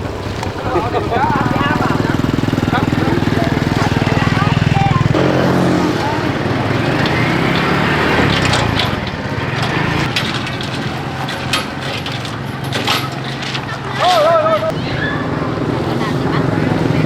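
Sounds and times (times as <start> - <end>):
small engine running: 0.0 - 17.0
sharp clicks and knocks: 6.7 - 13.8.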